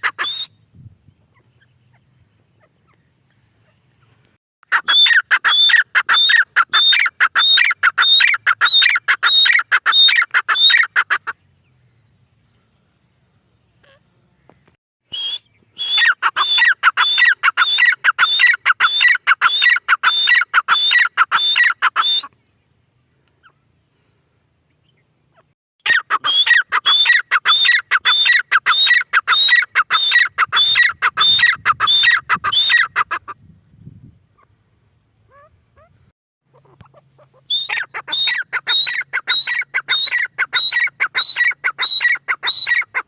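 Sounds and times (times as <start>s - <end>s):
francolin calling: 24.8s - 33.3s, 35.2s - 43.0s.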